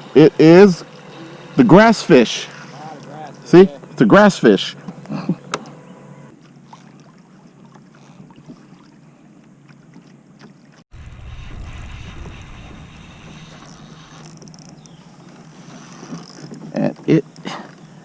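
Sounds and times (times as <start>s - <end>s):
water lapping and splashing: 0.0s - 4.0s, 4.8s - 18.0s
wind rumbling on microphone: 10.9s - 15.1s.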